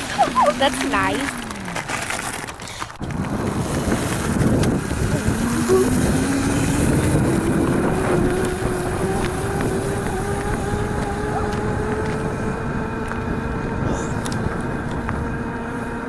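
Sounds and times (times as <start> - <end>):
electric motor whining: 0.0 - 16.0
wind rushing over microphone: 3.0 - 16.0.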